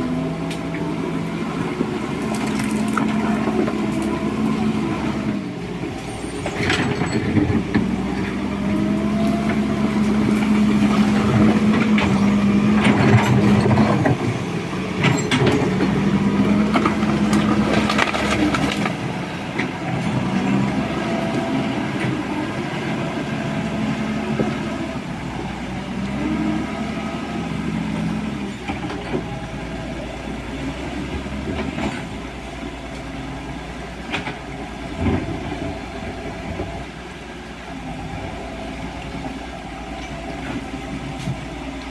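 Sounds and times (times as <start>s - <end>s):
excavator diesel engine: 0.0s - 41.9s
bucket clanking and scraping gravel: 2.2s - 4.0s, 15.0s - 19.0s.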